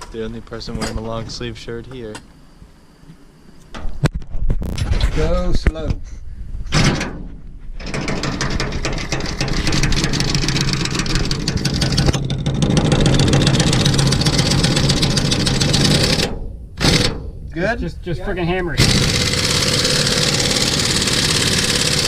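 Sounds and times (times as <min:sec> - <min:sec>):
impact wrench rattling whir: 0:07.8 - 0:17.4, 0:18.8 - 0:22.0.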